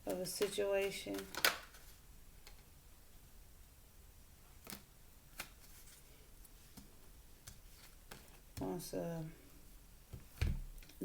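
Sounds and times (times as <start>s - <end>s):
tarot cards clicking and tapping: 0.1s - 2.7s, 4.6s - 5.7s, 6.7s - 8.8s.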